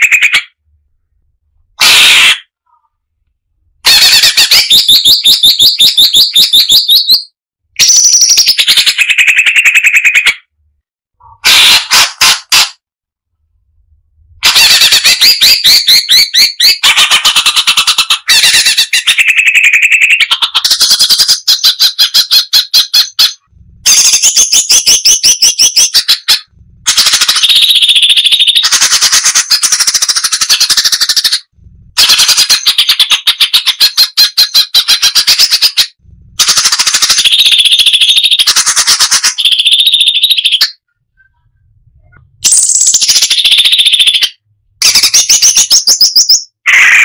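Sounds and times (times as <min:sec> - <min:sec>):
bulbul singing rapid repeated notes: 0:14.8 - 0:31.5, 0:32.1 - 0:40.8, 0:42.5 - 0:46.5.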